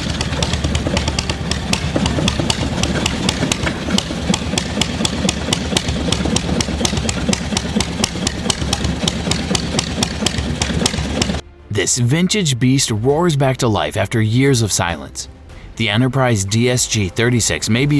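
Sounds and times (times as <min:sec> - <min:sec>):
engine knocking over low hum: 0:00.0 - 0:11.4.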